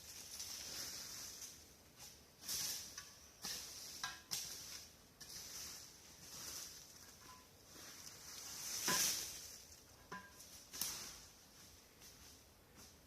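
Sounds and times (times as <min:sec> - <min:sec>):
dry leaves and brush rustling: 0:00.0 - 0:13.0.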